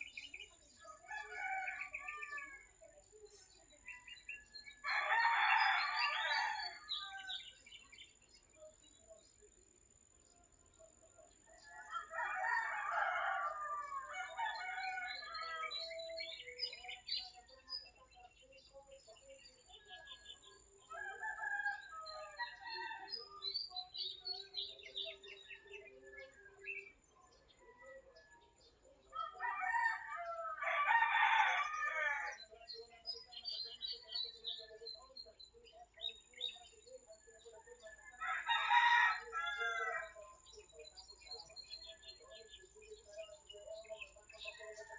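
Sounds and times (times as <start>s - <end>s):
small birds chirping: 0.0s - 44.9s
rooster crowing: 1.1s - 2.6s, 4.8s - 7.5s, 11.6s - 15.8s, 29.1s - 32.4s, 38.2s - 40.2s.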